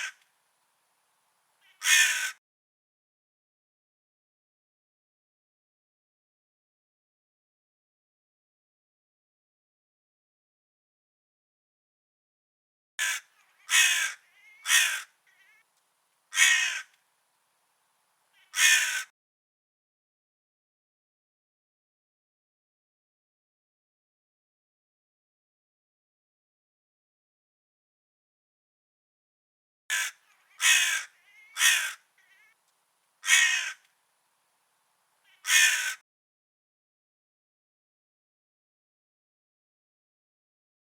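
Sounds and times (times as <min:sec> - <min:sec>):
crow cawing: 0:01.6 - 0:02.4, 0:13.0 - 0:15.6, 0:16.3 - 0:17.0, 0:18.4 - 0:19.1, 0:29.9 - 0:32.6, 0:33.2 - 0:33.9, 0:35.3 - 0:36.0
faint bird calls: 0:01.6 - 0:02.4, 0:13.0 - 0:15.7, 0:18.3 - 0:19.1, 0:29.9 - 0:32.6, 0:33.2 - 0:33.9, 0:35.2 - 0:36.0.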